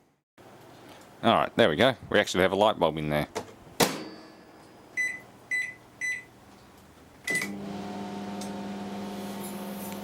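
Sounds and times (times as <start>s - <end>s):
microwave keypad beeping: 5.0s - 6.3s
microwave oven humming: 7.3s - 10.0s.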